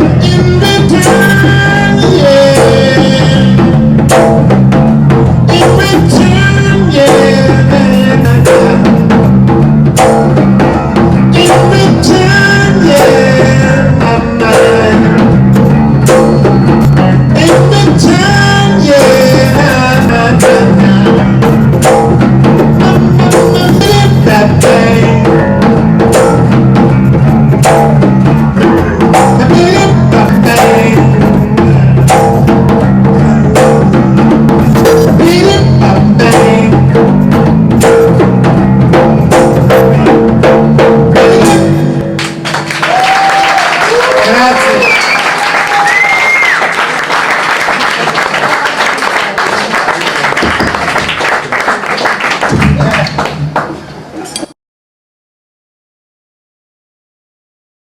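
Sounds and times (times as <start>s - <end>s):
person singing: 0.0s - 3.8s, 5.5s - 9.2s, 11.2s - 15.4s, 16.9s - 21.6s, 22.8s - 25.6s, 28.6s - 32.3s, 33.0s - 37.0s, 41.1s - 42.1s
sharp drum strikes: 0.0s - 42.4s, 52.5s - 53.8s
electric bass groove: 0.0s - 43.2s, 52.5s - 53.5s.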